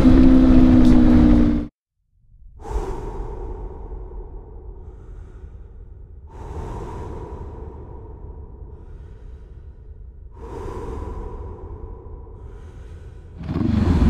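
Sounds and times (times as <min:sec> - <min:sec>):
motorcycle rumble: 0:00.0 - 0:01.7, 0:13.4 - 0:14.0.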